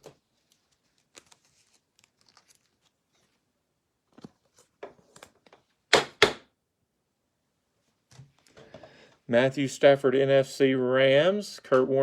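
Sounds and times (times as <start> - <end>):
packaging crinkling: 0.4 - 3.3.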